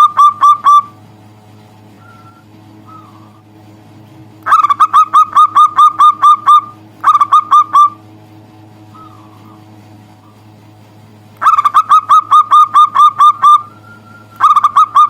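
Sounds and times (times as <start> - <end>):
dove cooing: 2.0 - 3.4, 4.5 - 8.0, 8.9 - 10.5, 11.4 - 15.0.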